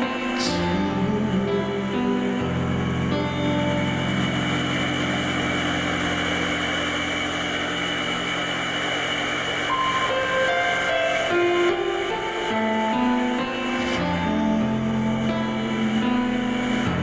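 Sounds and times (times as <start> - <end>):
electronic drone: 0.0 - 17.0
held higher notes: 0.0 - 17.0
sustained low tones: 0.0 - 17.0.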